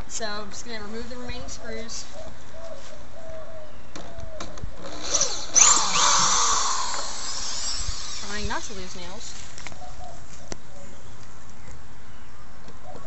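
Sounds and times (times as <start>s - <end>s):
power drill whirring: 4.8s - 9.5s.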